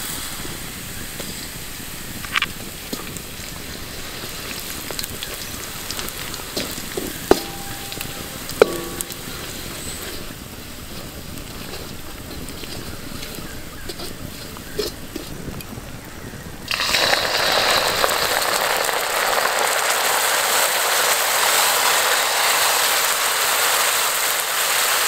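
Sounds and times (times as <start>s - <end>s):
food sizzling in wok: 0.0s - 15.6s, 16.6s - 25.0s
ladle clinking against wok: 6.5s - 15.4s.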